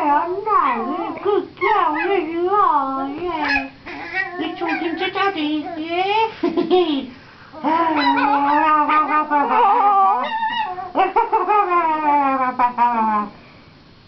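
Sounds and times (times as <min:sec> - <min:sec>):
puppy howling: 0:03.2 - 0:06.2, 0:07.6 - 0:12.6.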